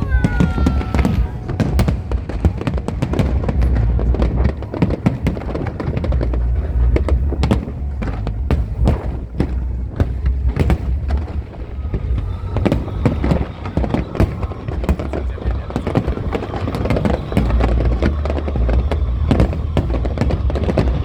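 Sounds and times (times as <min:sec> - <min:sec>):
fireworks bangs and crackles: 0:00.0 - 0:21.0
low rumble: 0:00.0 - 0:21.0
show music: 0:00.0 - 0:21.0.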